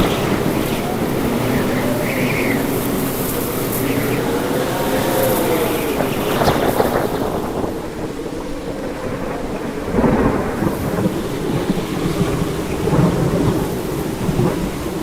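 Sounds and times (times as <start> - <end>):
heavy rain falling: 0.0 - 15.0
rolling thunder: 0.0 - 15.0
thunder crackle: 0.0 - 15.0.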